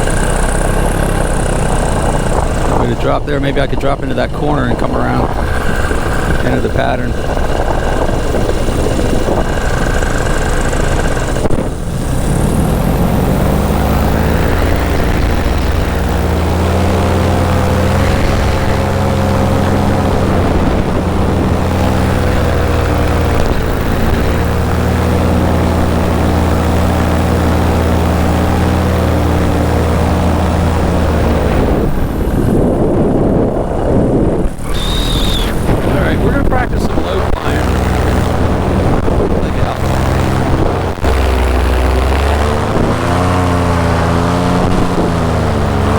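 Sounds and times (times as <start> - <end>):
paramotor engine and propeller droning: 0.0 - 45.9
wind rushing over microphone: 0.0 - 45.9.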